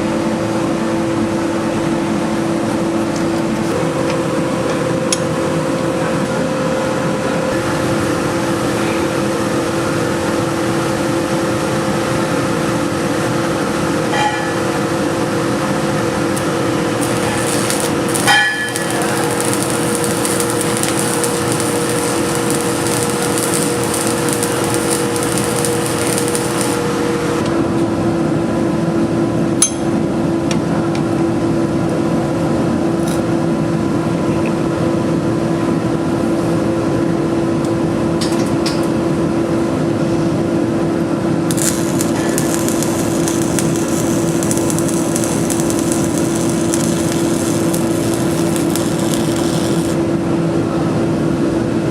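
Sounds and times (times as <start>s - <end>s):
steady hum tones: 0.0s - 51.9s
forge roaring: 7.5s - 27.5s, 41.5s - 50.1s.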